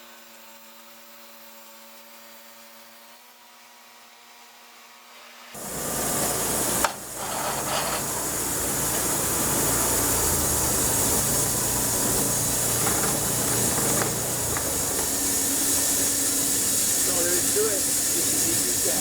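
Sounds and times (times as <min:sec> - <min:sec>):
engine hum: 0:05.6 - 0:19.0
loud even hiss: 0:05.6 - 0:19.0.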